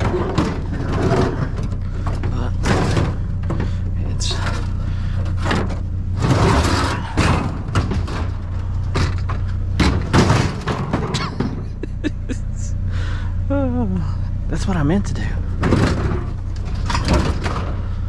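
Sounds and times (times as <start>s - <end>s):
plastic dishwasher thudding and clattering: 0.0s - 3.8s, 5.4s - 11.7s, 15.6s - 17.8s
steady low hum: 0.0s - 18.0s.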